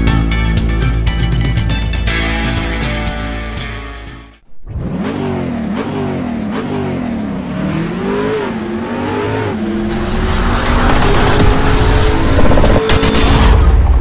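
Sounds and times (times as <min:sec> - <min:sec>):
car engine accelerating hard: 0:04.6 - 0:12.9.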